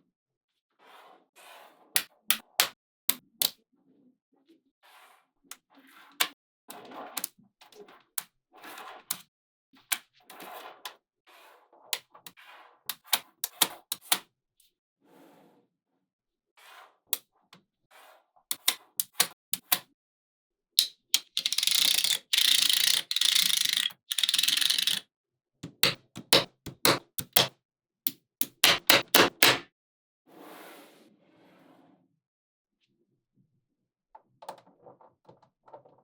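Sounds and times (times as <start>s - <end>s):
magnetic balls clicking together: 18.5s - 19.8s, 20.8s - 25.0s, 25.6s - 27.5s, 28.4s - 29.7s
magnetic balls rattling: 21.2s - 25.0s.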